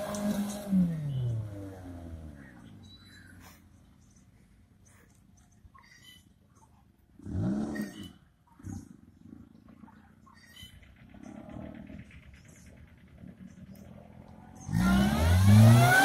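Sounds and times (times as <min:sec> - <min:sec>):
car engine revving: 0:00.0 - 0:02.6, 0:13.4 - 0:16.0.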